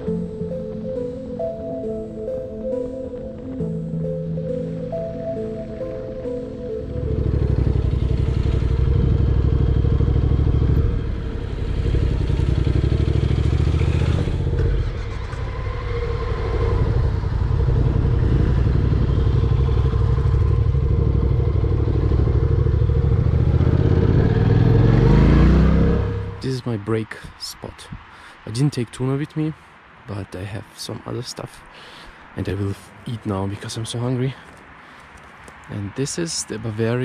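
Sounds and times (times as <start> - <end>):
motorcycle engine running: 6.8 - 26.4.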